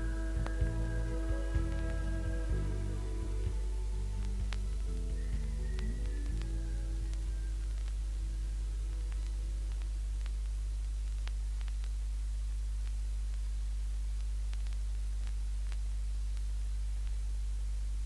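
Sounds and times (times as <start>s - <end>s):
low hum: 0.0s - 18.0s
playback hiss: 0.0s - 18.0s
faint clicks: 8.9s - 12.0s, 14.2s - 17.2s.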